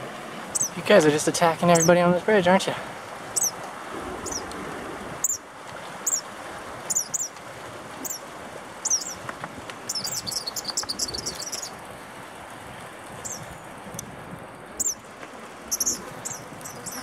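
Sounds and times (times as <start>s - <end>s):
rushing river: 0.0s - 17.0s
kingbird sharp high calls: 0.6s - 0.8s.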